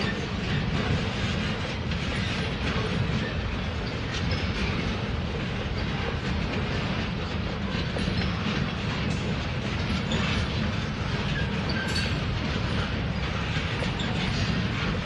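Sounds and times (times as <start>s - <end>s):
train wheels rumbling on rail: 0.0s - 15.0s
wheels clicking over rail joints: 0.0s - 15.0s
faint wheel squeal: 11.2s - 12.2s.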